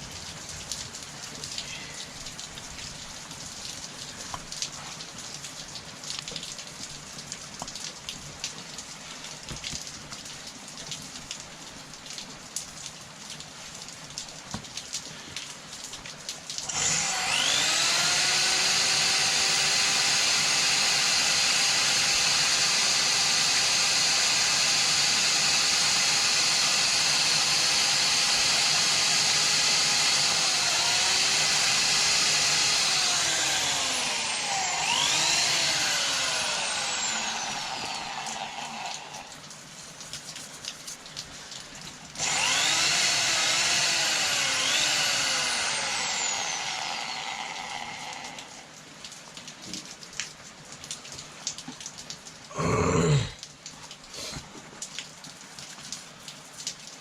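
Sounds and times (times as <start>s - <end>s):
power tool motor winding down: 16.7s - 39.3s, 42.2s - 48.7s.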